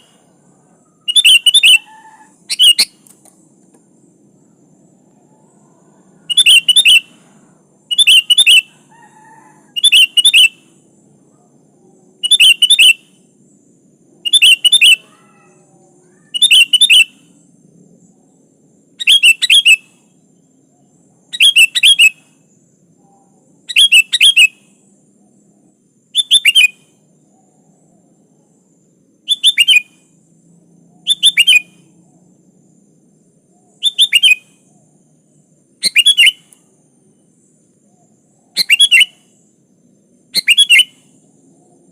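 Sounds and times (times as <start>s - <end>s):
bulbul calling: 0.0s - 3.2s, 5.2s - 10.8s, 12.2s - 13.3s, 14.2s - 17.4s, 19.0s - 20.2s, 20.8s - 22.4s, 23.2s - 24.7s, 26.1s - 28.1s, 29.2s - 30.1s, 30.9s - 32.0s, 33.6s - 35.0s, 35.8s - 36.6s, 37.9s - 39.5s, 40.3s - 41.2s.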